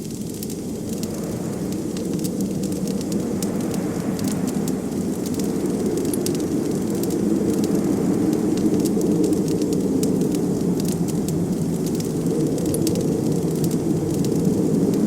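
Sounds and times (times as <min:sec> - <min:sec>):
blizzard wind rushing: 0:00.0 - 0:15.0
wood fire crackling: 0:00.0 - 0:15.0.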